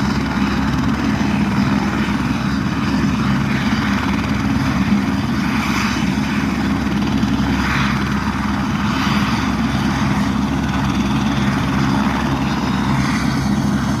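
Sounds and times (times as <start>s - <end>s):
helicopter engine and rotor drone: 0.0s - 14.0s.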